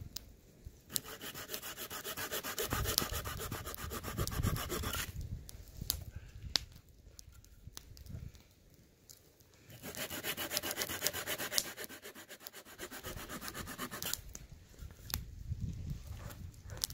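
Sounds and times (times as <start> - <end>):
hand saw cutting wood: 0.9 - 5.1, 9.7 - 14.2.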